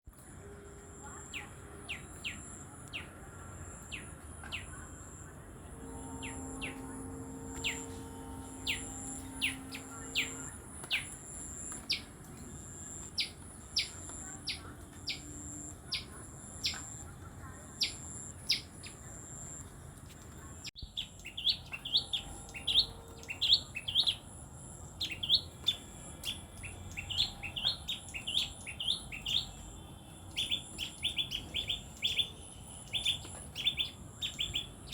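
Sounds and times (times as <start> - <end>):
bird chirping: 5.8 - 19.7, 20.7 - 34.9.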